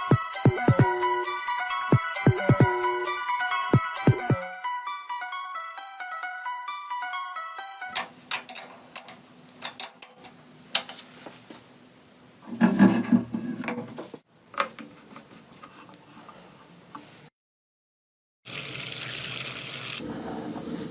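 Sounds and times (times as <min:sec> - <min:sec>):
music: 0:00.0 - 0:08.1
clicks and knocks on metal parts: 0:08.0 - 0:11.0.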